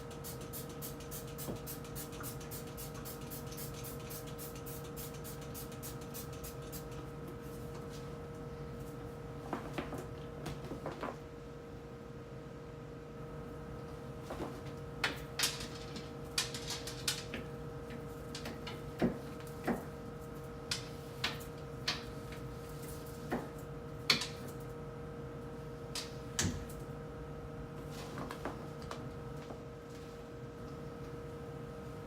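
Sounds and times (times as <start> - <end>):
steady electrical hum: 0.0 - 32.0.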